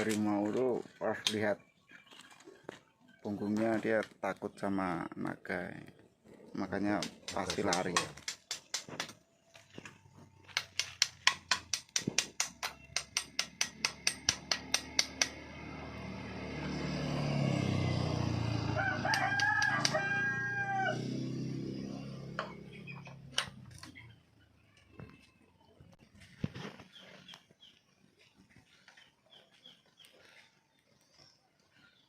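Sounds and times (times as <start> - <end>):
sharp knocks: 10.6 - 15.4
rooster crowing: 17.7 - 21.7.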